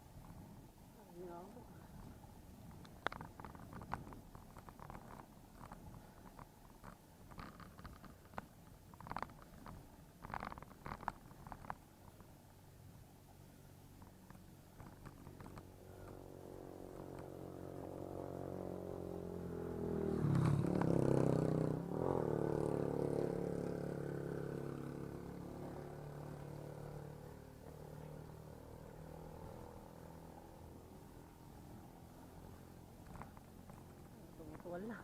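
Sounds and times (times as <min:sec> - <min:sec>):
vehicle engine passing: 0:16.0 - 0:34.1.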